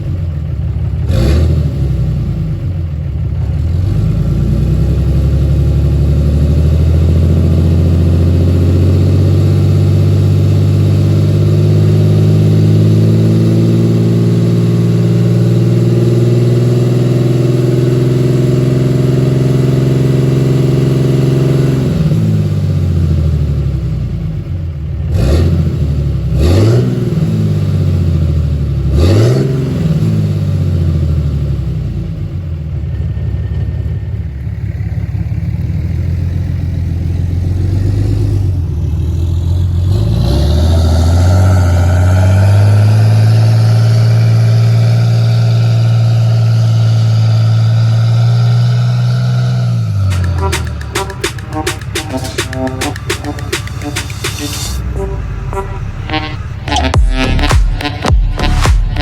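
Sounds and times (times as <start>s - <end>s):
pickup truck engine revving: 1.0s - 2.6s, 3.5s - 23.5s, 36.8s - 51.6s.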